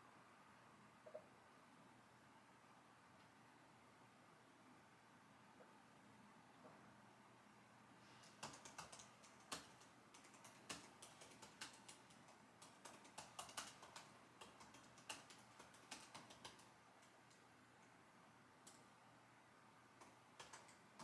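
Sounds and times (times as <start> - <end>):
computer keyboard typing: 8.2 - 17.5, 20.0 - 21.0.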